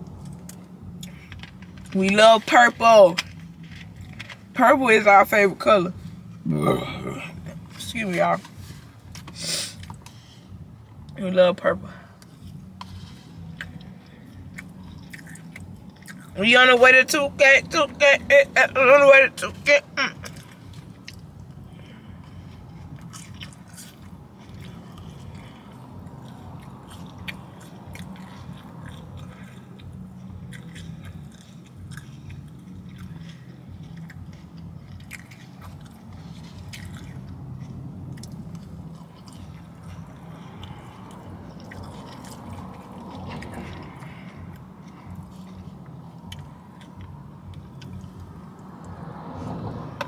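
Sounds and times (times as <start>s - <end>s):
person chewing: 0.0s - 1.9s, 8.4s - 10.2s, 12.2s - 16.4s, 20.2s - 49.3s
steady low hum: 0.0s - 50.0s.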